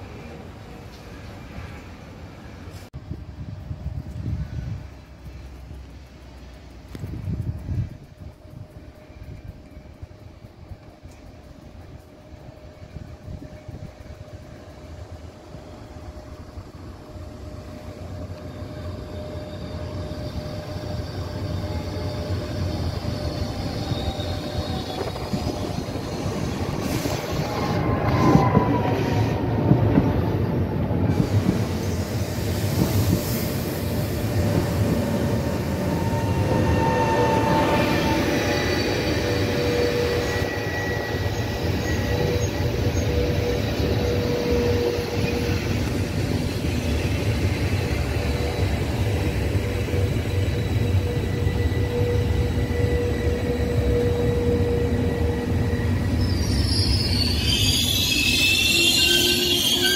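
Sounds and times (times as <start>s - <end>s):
train wheels rumbling: 0.0s - 59.9s
wheels and brakes squealing: 17.0s - 59.9s.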